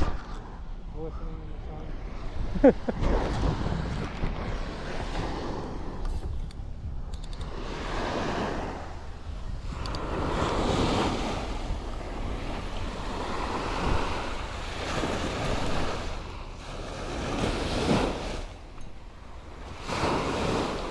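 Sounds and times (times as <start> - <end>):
ocean waves washing on shore: 0.0 - 20.9
wind rumbling on microphone: 0.0 - 20.9.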